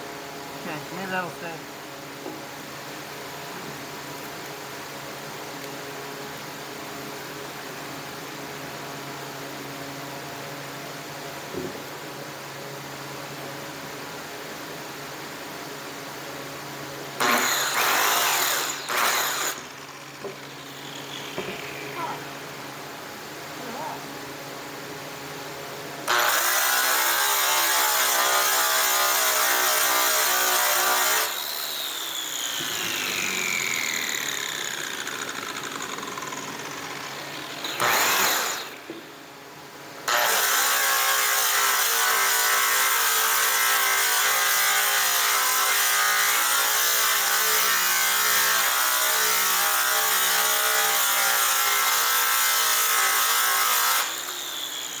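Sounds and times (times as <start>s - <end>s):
electric polishing tool on metal: 17.2s - 22.3s, 26.1s - 39.0s, 40.1s - 55.0s.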